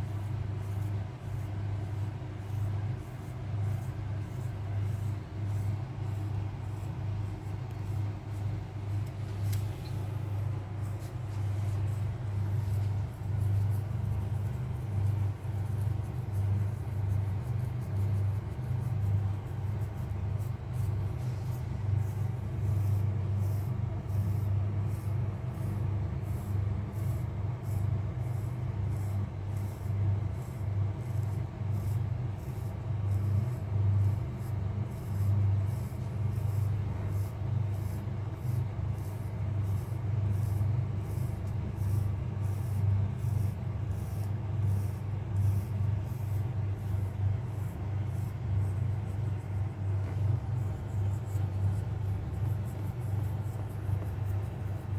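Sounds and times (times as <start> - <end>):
fingers scratching cat fur: 0.0 - 54.9.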